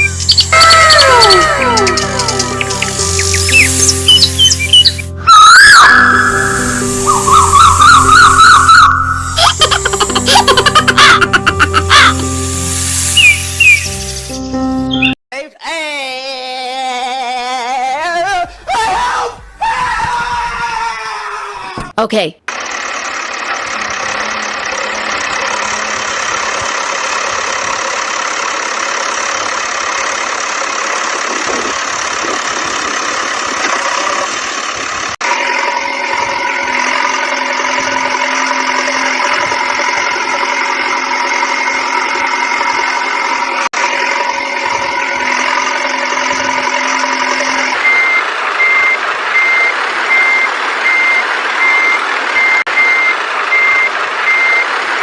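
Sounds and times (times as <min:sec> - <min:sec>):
tinny electronic engine sound: 0:22.5 - 0:31.5, 0:33.8 - 0:49.5
reversing beep: 0:45.4 - 0:54.7.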